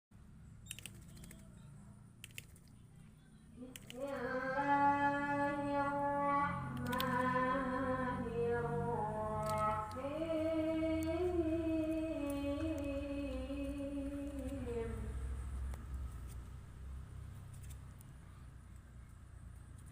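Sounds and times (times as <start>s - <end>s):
person singing slow tune: 3.6s - 15.5s.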